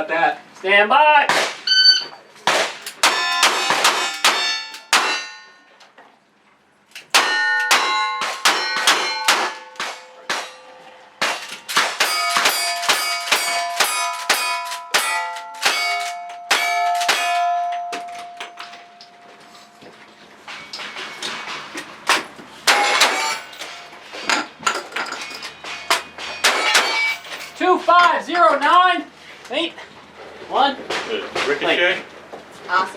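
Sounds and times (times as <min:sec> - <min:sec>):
steel target clanging: 0:01.3 - 0:05.8, 0:07.0 - 0:28.2.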